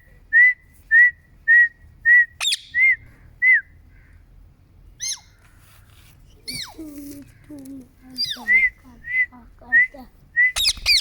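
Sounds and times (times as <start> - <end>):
parrot squeak: 5.0 - 5.3, 10.6 - 11.0.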